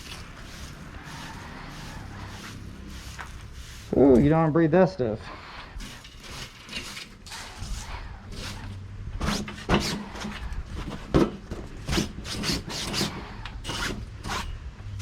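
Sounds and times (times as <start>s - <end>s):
broom sweeping a floor: 0.0s - 4.3s.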